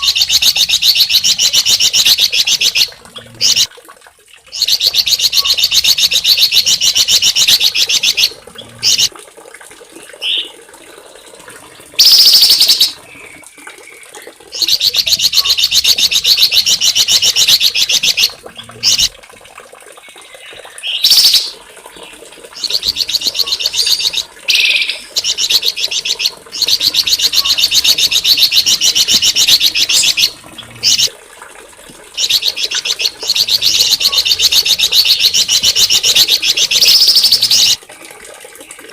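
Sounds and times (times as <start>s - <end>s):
songbird trilling: 12.0s - 13.0s, 14.6s - 19.1s, 22.6s - 31.1s, 32.2s - 37.8s.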